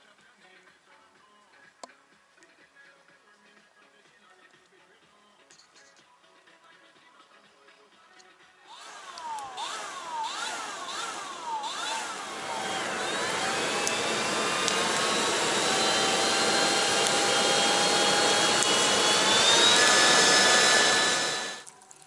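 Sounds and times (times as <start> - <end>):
thin whining tones rising: 8.7 - 21.7.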